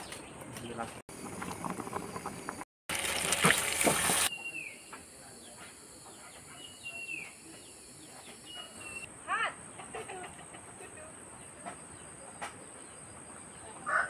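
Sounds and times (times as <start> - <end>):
meat sizzling in a wok: 2.9 - 4.3.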